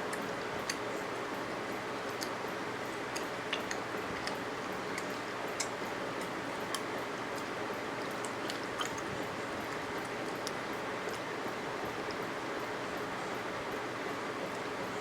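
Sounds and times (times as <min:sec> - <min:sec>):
wet mouth clicks and smacks: 0:03.1 - 0:07.5
person chewing food: 0:03.1 - 0:11.3.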